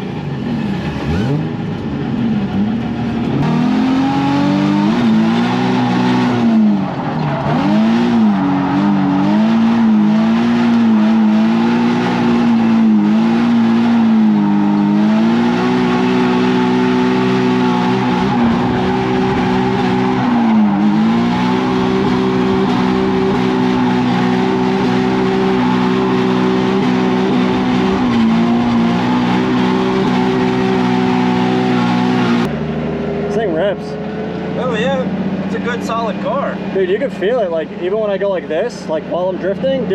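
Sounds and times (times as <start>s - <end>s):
car engine revving: 0.0s - 39.9s
tyres squealing: 5.0s - 32.5s.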